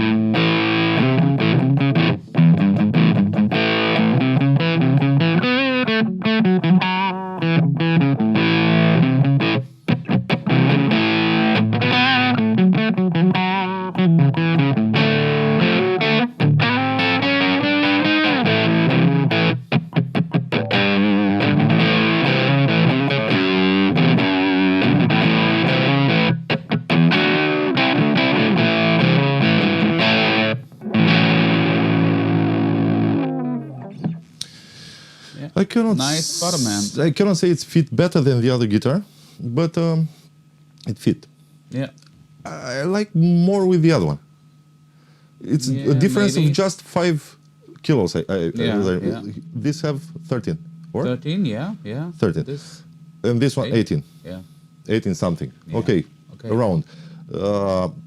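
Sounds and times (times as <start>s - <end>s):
distorted electric guitar riff: 0.0s - 35.4s, 36.0s - 37.0s, 48.6s - 51.7s.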